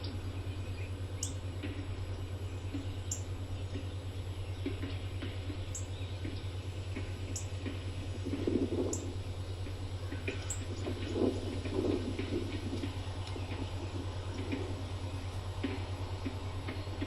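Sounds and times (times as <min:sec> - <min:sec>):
steady low hum: 0:00.0 - 0:17.0
rain dripping: 0:01.0 - 0:17.0.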